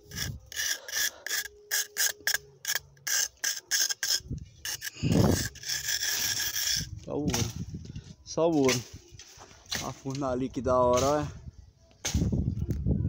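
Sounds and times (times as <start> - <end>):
machete scratching sandstone: 0.0 - 7.7.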